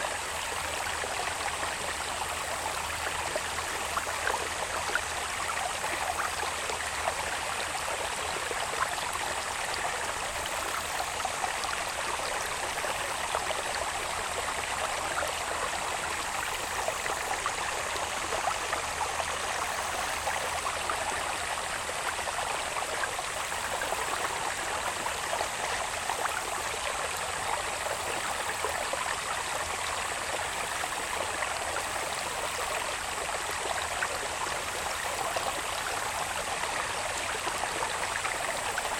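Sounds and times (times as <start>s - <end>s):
water babbling in a channel: 0.0s - 38.9s.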